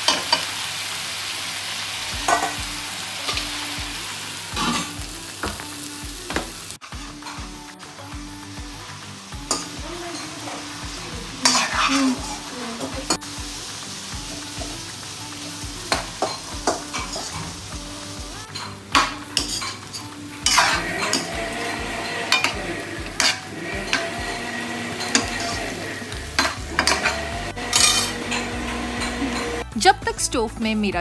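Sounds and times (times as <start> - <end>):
chicken sizzling in oil: 0.0 - 29.7
metal ladle scraping wok: 11.4 - 12.4, 19.4 - 29.6.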